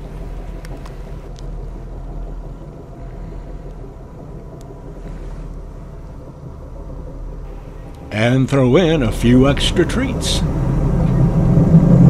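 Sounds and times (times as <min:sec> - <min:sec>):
train rumble from inside: 0:00.0 - 0:12.0
faint clicks: 0:00.2 - 0:06.7.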